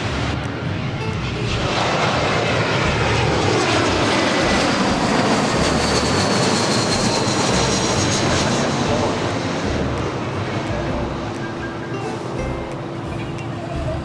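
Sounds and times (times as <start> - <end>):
airliner engines running: 0.0 - 14.0.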